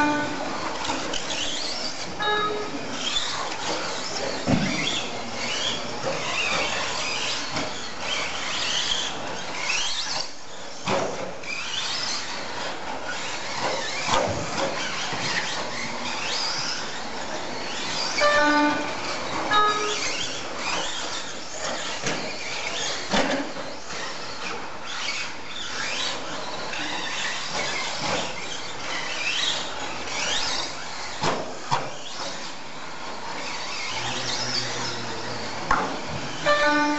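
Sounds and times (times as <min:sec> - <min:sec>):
rc truck motors whining: 0:00.0 - 0:36.9
short beeping tone: 0:02.2 - 0:02.9, 0:18.2 - 0:20.1.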